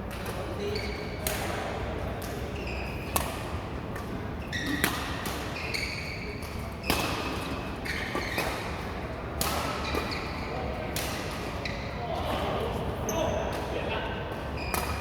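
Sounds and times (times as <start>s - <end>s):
shoe squeaks on court floor: 2.6s - 3.1s, 4.4s - 4.9s, 5.5s - 8.5s, 9.8s - 10.6s, 14.6s - 15.0s.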